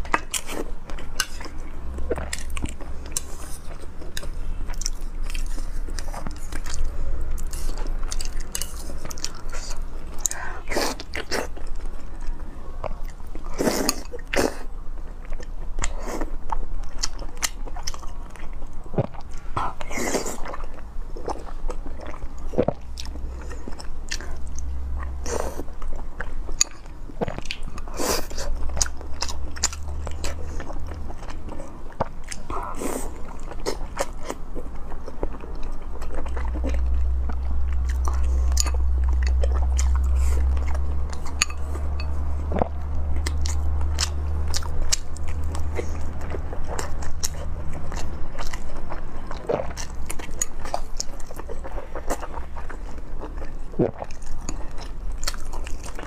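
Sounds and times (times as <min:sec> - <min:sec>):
person chewing: 0:00.0 - 0:56.0
steady low hum: 0:00.0 - 0:56.0.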